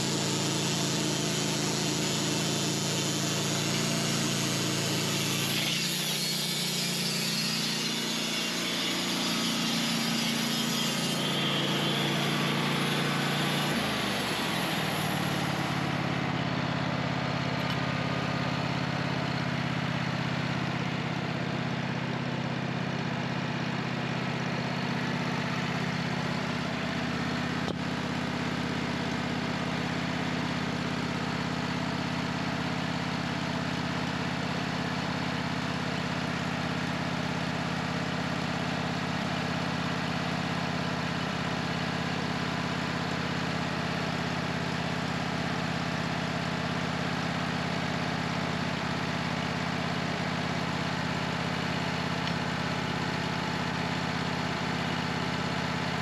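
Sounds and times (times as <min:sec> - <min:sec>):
saw blade cutting wood: 0:00.0 - 0:33.1
sawmill engine running: 0:00.0 - 0:56.0.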